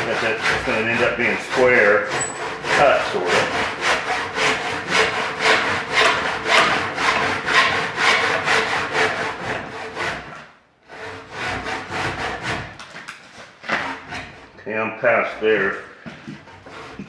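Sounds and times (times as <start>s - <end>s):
hand saw cutting log: 0.0s - 14.6s, 15.4s - 17.0s.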